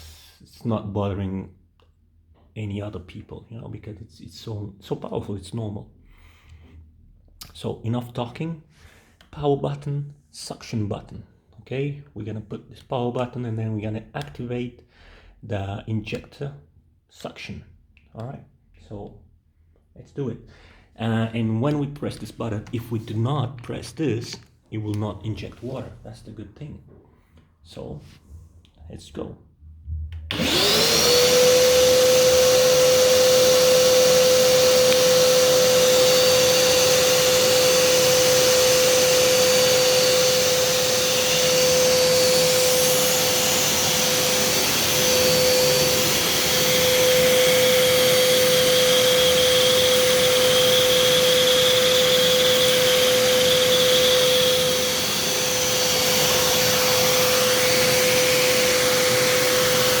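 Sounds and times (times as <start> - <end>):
vacuum motor whining with suction: 30.3 - 60.0.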